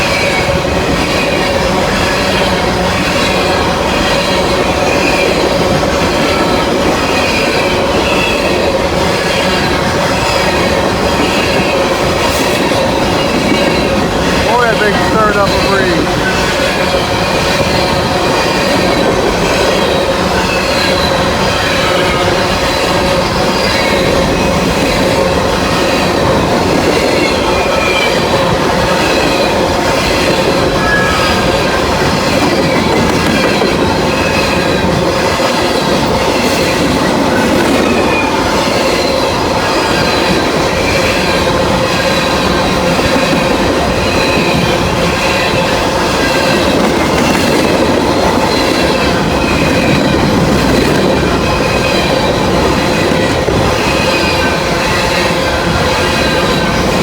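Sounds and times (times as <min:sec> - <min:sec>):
freight train cars rolling: 0:00.0 - 0:57.0
wheels squealing: 0:15.5 - 0:57.0.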